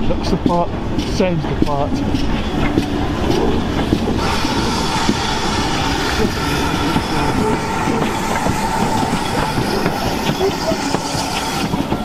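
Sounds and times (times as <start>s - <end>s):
steam locomotive running past: 0.0s - 12.0s
steady high-pitched tone: 4.2s - 12.0s.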